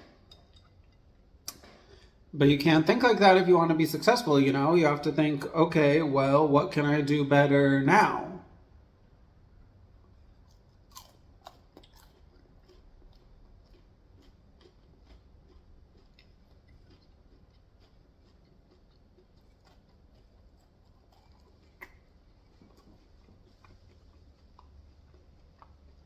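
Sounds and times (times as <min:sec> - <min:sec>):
close-up chewing: 0:00.0 - 0:02.3, 0:10.0 - 0:26.0.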